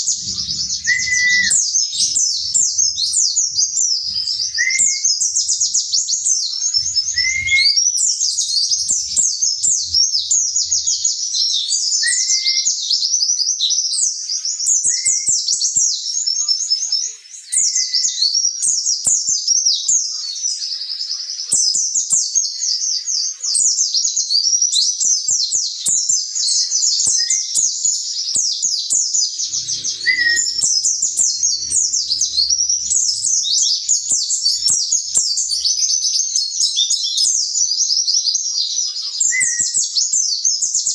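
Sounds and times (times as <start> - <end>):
high bird twittering: 0.0 - 12.6, 29.3 - 37.4
bird rising call note: 0.1 - 5.1, 29.4 - 36.0.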